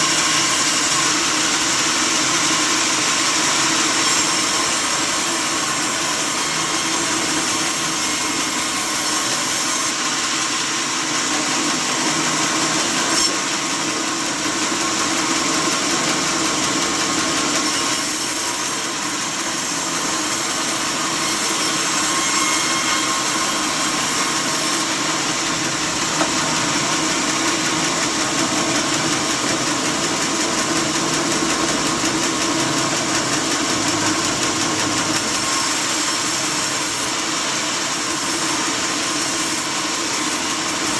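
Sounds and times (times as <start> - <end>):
sawmill saw running: 0.0 - 40.9.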